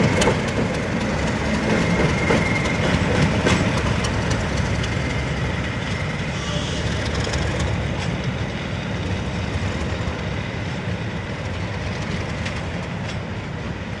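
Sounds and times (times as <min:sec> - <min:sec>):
train wheels clicking over rail joints: 0:00.0 - 0:10.3, 0:11.3 - 0:14.0
train rumble: 0:00.0 - 0:14.0.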